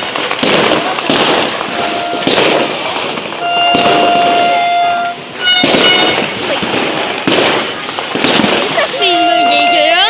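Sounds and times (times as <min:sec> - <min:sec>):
firecracker crackling: 0:00.0 - 0:10.0
firework bangs: 0:00.0 - 0:10.0
horn-like tone: 0:01.7 - 0:02.4, 0:03.4 - 0:06.4, 0:09.0 - 0:10.0.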